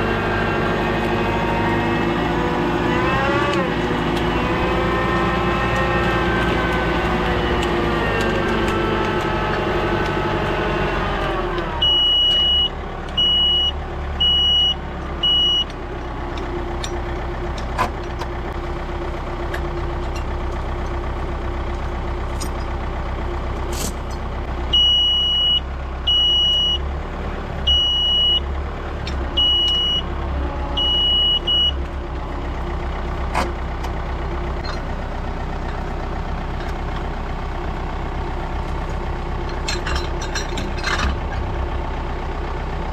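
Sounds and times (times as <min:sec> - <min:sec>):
work machine engine running: 0:00.0 - 0:24.7
reversing alarm beeping: 0:11.8 - 0:15.8, 0:24.7 - 0:26.8, 0:27.7 - 0:28.5, 0:29.4 - 0:30.1, 0:30.8 - 0:31.8.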